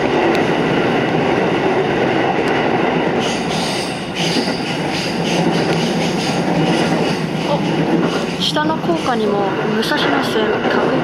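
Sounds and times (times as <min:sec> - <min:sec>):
train wheels rumbling on rails: 0:00.0 - 0:11.0
wheel squeal and ticks: 0:03.2 - 0:07.3.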